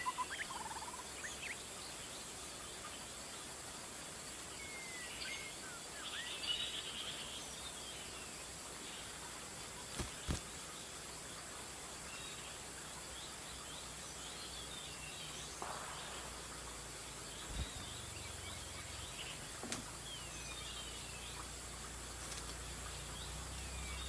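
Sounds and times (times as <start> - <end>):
insect hiss: 0.0 - 24.0
bird whistles and chirps: 4.6 - 6.8.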